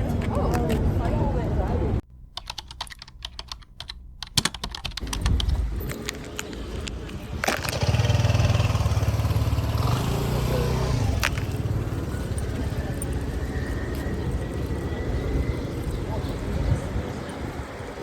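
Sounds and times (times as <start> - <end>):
motor engine humming: 2.0 - 18.0
sharp clicks: 2.3 - 8.4.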